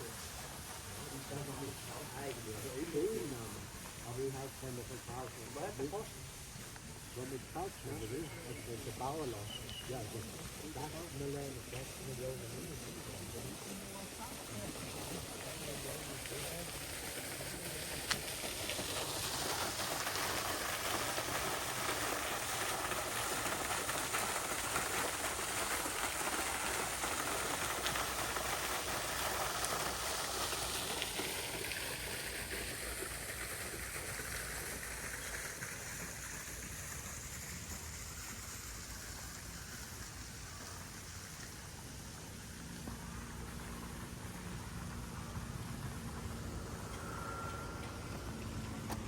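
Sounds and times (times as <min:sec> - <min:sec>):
steady rushing noise: 0:43.1 - 0:49.0.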